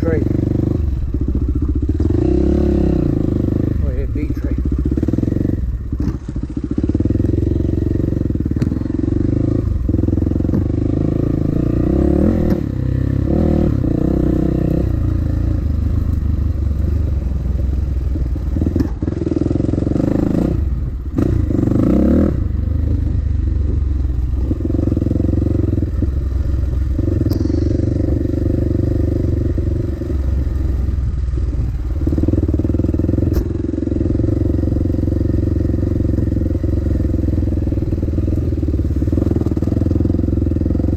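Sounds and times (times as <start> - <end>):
dirt bike engine revving: 0.0 - 15.6, 18.5 - 23.1.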